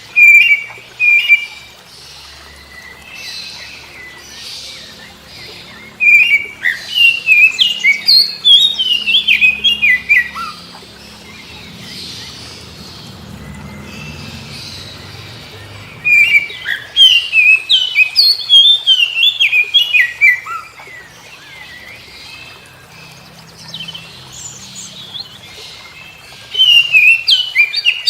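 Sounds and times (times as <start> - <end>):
magpie-robin singing whistled notes: 0.0 - 1.6, 2.9 - 12.3, 15.5 - 22.6, 26.4 - 28.0.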